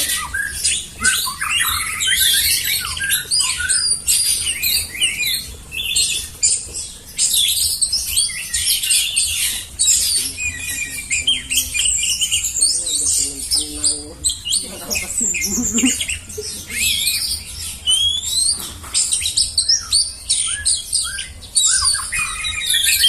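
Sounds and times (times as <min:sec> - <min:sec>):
songbirds chorus: 0:00.0 - 0:23.0.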